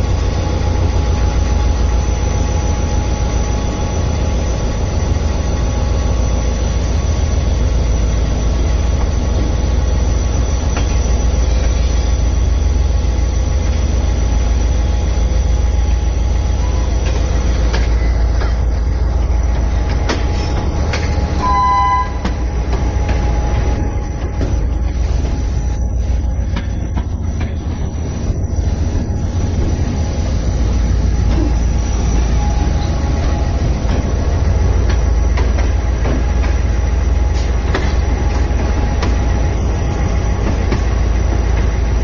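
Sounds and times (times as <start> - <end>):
train rumbling on rails: 0.0 - 42.0
short high-pitched tone: 21.4 - 22.3.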